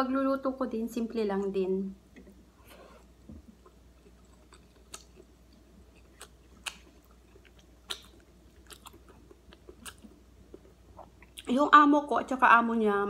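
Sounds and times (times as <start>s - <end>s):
chewing with wet mouth smacks: 3.5s - 11.5s.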